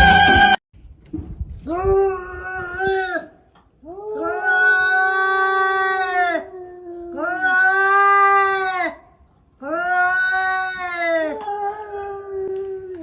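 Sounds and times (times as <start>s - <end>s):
cat yowling: 3.9s - 9.0s, 9.6s - 13.0s.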